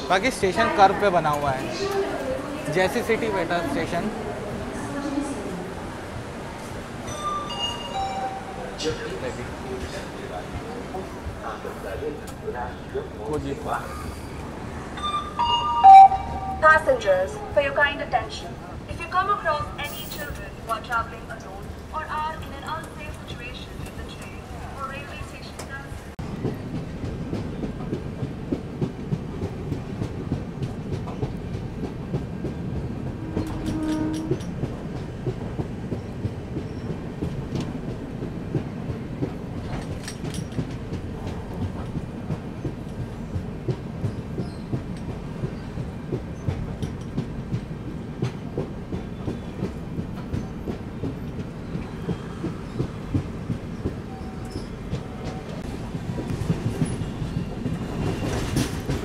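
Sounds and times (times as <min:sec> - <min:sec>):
train rumble: 0:00.0 - 0:59.0
train wheels clickety-clack: 0:19.0 - 0:59.0.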